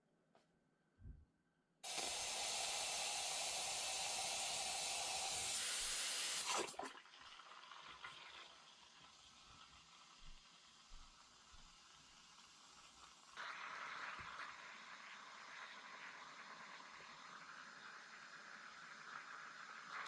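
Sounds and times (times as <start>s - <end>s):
espresso machine steam hiss: 1.8s - 6.5s.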